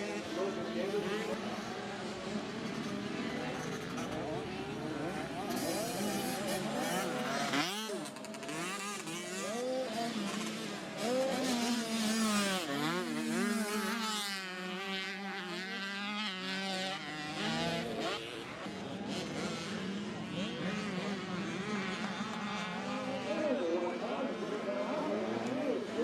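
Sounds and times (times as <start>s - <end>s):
dirt bike engines revving: 0.0s - 26.0s.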